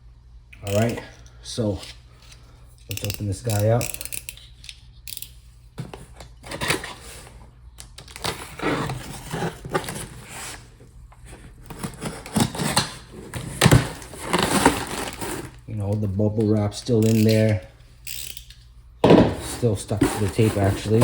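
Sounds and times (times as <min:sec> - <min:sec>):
cardboard flaps rustling: 0:08.2 - 0:15.6, 0:19.0 - 0:21.0
packing tape tearing: 0:11.6 - 0:15.6.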